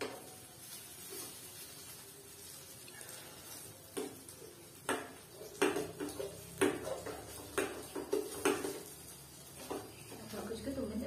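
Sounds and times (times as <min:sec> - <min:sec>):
utensil knocking on a pan: 0:03.9 - 0:09.0.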